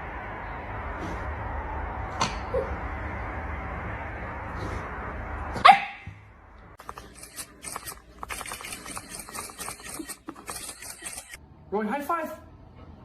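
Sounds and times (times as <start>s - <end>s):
dog barking: 5.6s - 6.0s.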